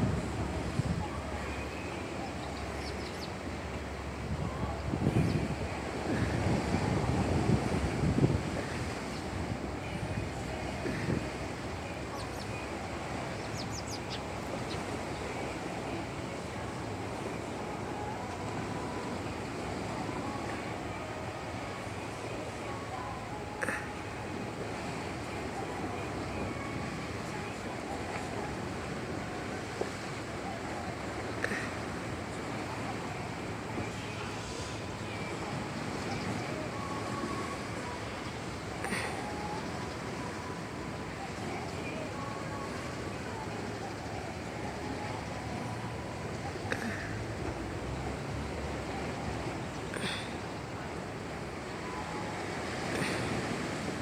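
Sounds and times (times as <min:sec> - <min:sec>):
wind buffeting microphone: 0:00.0 - 0:21.8
boat engine rumble: 0:00.0 - 0:54.0
water: 0:00.0 - 0:54.0
wind: 0:00.0 - 0:54.0.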